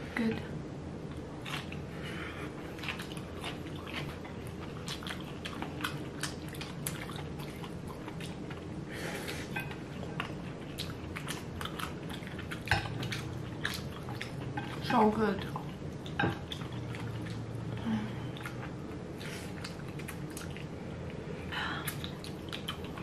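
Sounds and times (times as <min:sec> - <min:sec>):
low steady hum: 0:00.0 - 0:23.0
people chewing food: 0:00.0 - 0:23.0.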